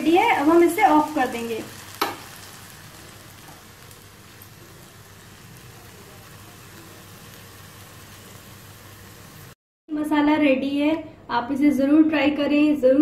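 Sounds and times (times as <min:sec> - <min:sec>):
food sizzling in a frying pan: 0:00.0 - 0:09.6.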